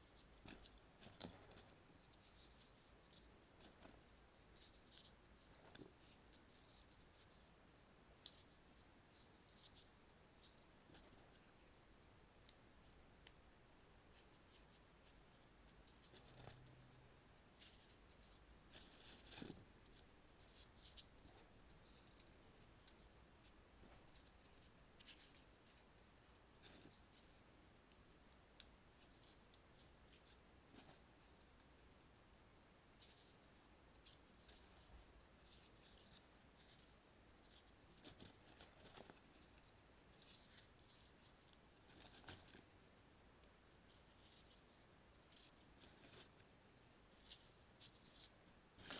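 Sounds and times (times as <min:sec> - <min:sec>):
paper rustling and crinkling: 0:15.9 - 0:23.0, 0:33.0 - 0:42.9, 0:43.8 - 0:48.9.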